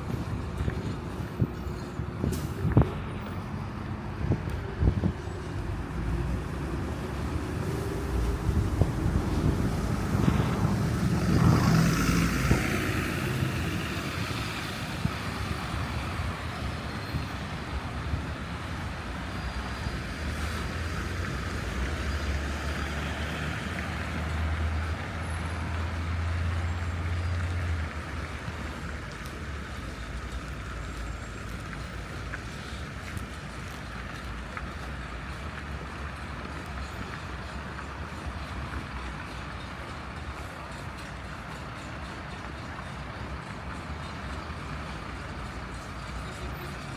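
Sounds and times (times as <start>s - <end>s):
heavy vehicle engine hum: 0.0s - 46.9s
vehicles passing: 0.0s - 46.9s.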